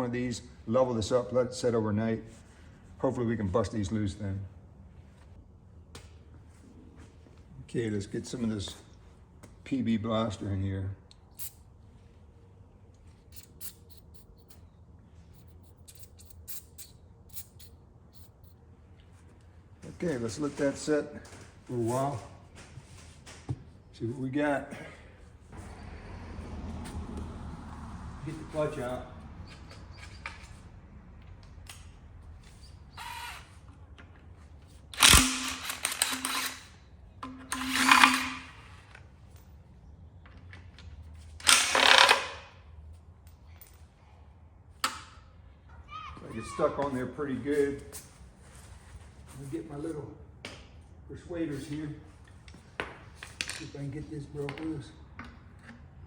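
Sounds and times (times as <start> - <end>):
power tool bursts: 32.9 - 33.6, 35.0 - 38.8, 41.4 - 42.4.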